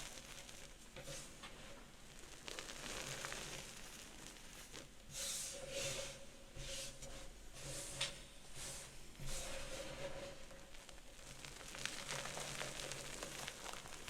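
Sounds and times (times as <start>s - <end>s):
chalk crumbling by hand: 2.2s - 4.9s, 10.7s - 14.0s
crunchy chalk squeezes: 2.2s - 4.9s, 11.2s - 14.0s.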